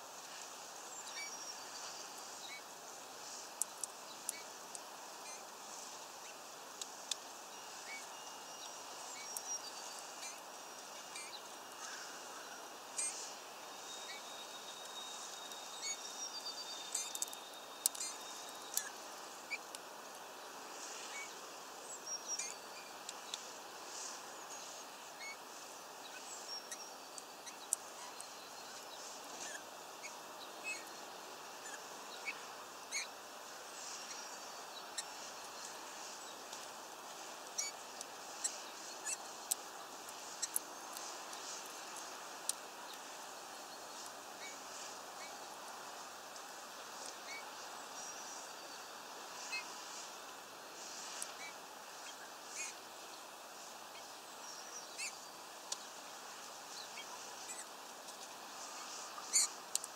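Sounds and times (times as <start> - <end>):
steady outdoor hiss: 0.0 - 59.9
high bird chirps: 13.0 - 19.6.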